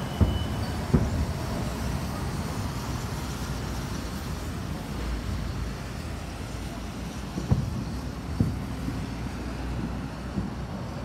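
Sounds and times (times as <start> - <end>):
distant fireworks booming: 0.0 - 3.9, 6.7 - 11.0.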